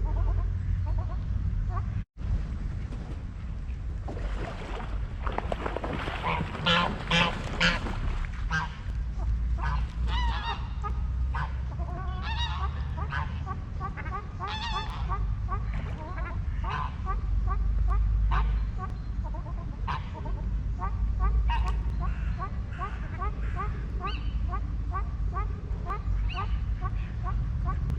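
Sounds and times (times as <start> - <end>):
steady low rumble: 0.0 - 27.9
geese honking: 6.2 - 27.9.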